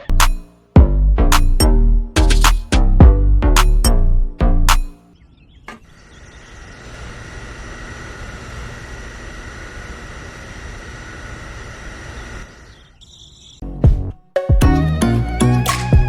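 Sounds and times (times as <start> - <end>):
small motor whining: 6.0 - 13.3.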